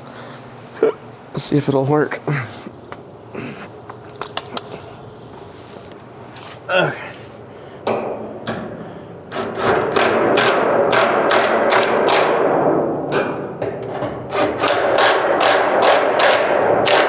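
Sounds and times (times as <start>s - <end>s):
electric ratchet clacking: 9.3s - 12.4s, 14.3s - 17.0s.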